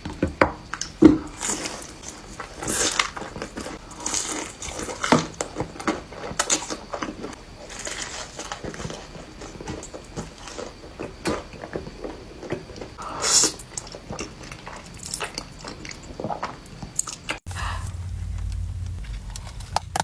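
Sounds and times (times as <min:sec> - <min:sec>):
biting and chewing: 0:00.7 - 0:20.0.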